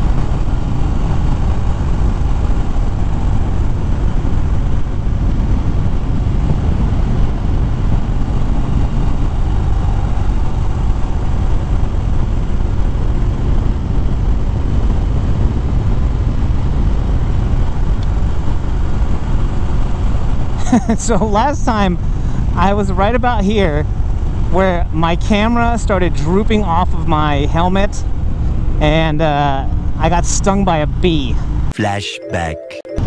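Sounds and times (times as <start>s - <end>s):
wind rushing over microphone: 0.0s - 20.6s
motorcycle engine cruising: 0.0s - 31.6s.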